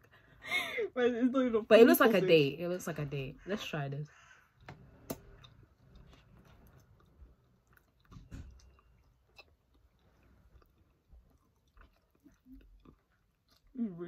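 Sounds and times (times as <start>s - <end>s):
faint chewing with mouth clicks: 4.2s - 14.0s.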